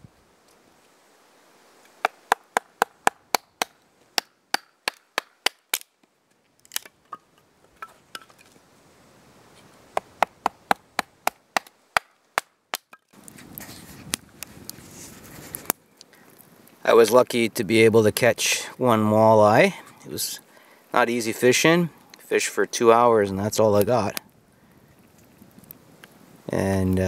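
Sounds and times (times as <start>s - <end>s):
axe tapping firewood on rock: 2.0s - 5.9s, 10.0s - 13.2s.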